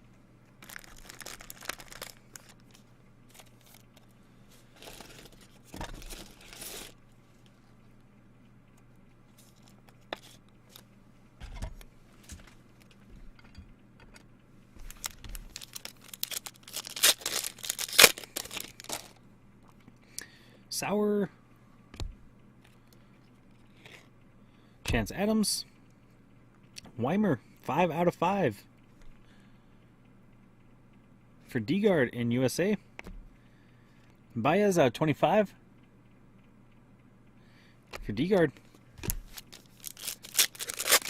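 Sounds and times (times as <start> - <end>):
faint steady hum: 0.0 - 41.0
wrappers tearing and crinkling: 0.6 - 3.8, 4.7 - 7.0, 14.8 - 19.2, 39.0 - 41.0
cards being handled: 0.6 - 7.0, 14.8 - 19.2, 37.9 - 41.0.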